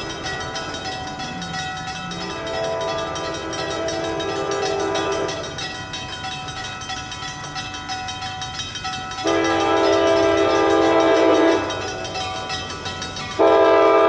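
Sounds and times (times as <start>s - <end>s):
train running noise: 0.0s - 14.0s
train horn blasts: 2.2s - 5.7s, 9.2s - 12.1s, 13.4s - 14.0s.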